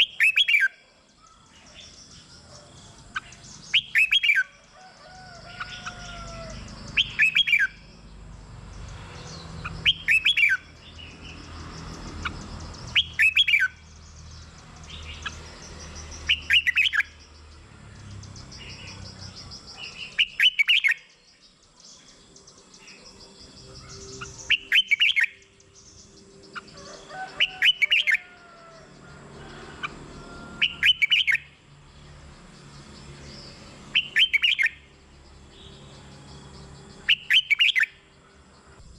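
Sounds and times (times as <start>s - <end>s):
faint bird chirps: 0.0s - 8.0s, 18.4s - 28.8s
bird singing bright phrases: 0.0s - 38.9s.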